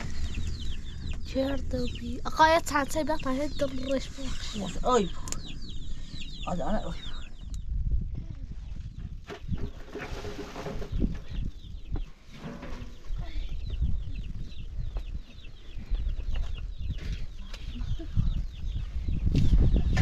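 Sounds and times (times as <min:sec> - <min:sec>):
low rumble: 0:00.0 - 0:09.6.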